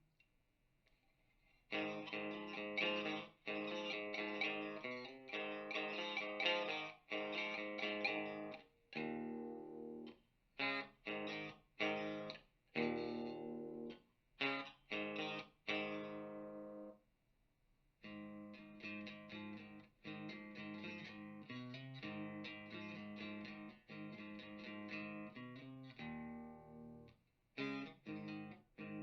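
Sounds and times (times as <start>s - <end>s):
electric guitar chords: 1.7s - 16.9s, 18.0s - 29.0s.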